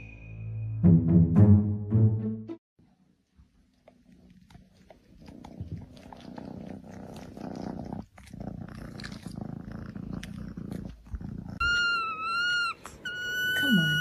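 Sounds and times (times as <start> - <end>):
cat purring: 3.7 - 11.8.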